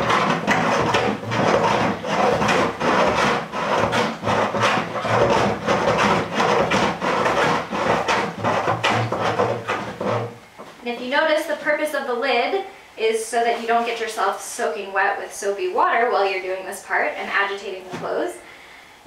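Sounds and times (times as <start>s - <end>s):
plunger agitating water and clothes: 0.0s - 10.4s.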